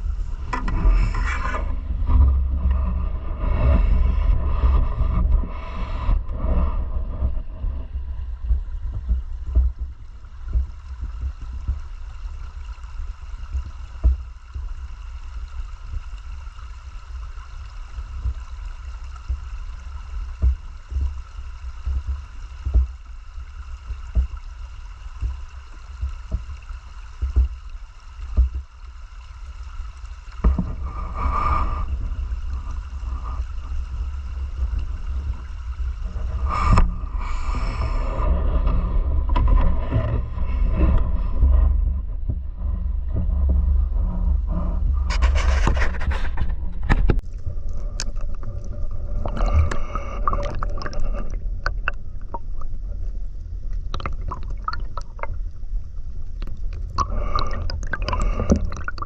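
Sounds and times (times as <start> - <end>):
heavy low rumble: 0.0 - 15.1, 30.2 - 59.0
river water gurgling: 0.0 - 41.7, 46.6 - 59.0
scraping and knocking: 0.4 - 5.5.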